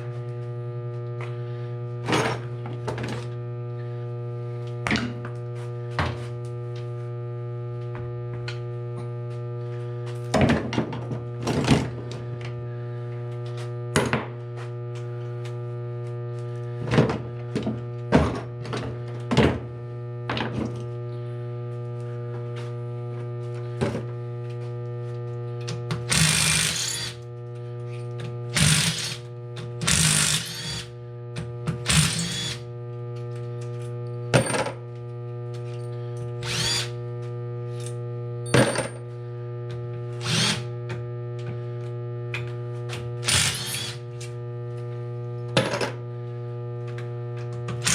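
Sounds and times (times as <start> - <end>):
steady hum: 0.0 - 47.9
power driver whirring: 25.9 - 27.3, 28.5 - 31.0, 31.8 - 32.7, 35.8 - 37.0, 40.1 - 40.8, 43.2 - 44.4, 47.5 - 47.9.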